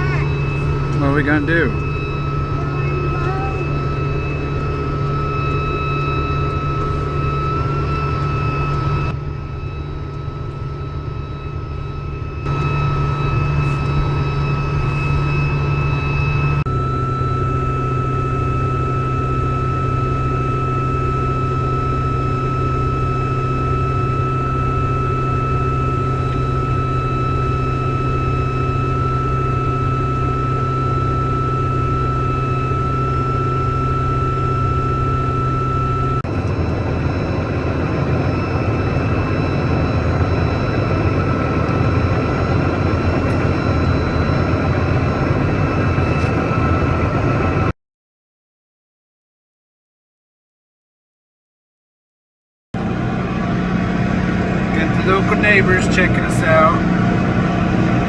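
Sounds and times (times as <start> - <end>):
heavy farm machinery running: 0.0 - 9.6, 52.8 - 58.0.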